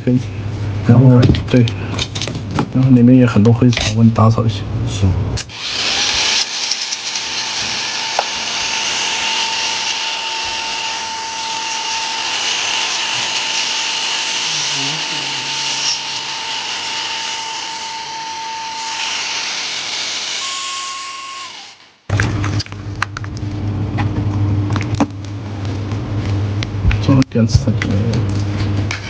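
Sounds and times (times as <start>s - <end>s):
electric dust cleaner whirring: 5.4s - 22.1s.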